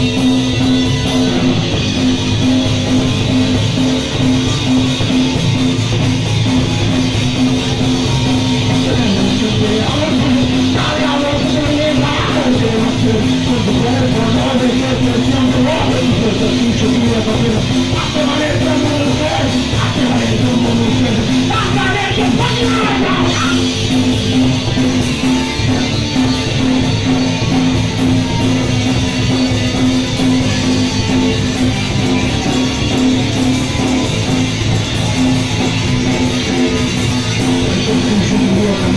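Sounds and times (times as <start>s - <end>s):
punk band playing live: 0.0s - 38.9s
person singing: 8.7s - 23.7s.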